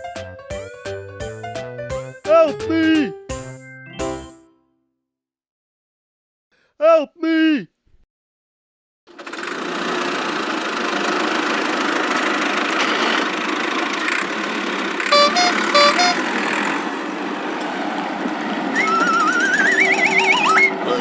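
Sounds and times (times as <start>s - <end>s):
cartoon vehicle engine: 9.1s - 21.0s
horn beeping rising notes: 15.1s - 16.4s.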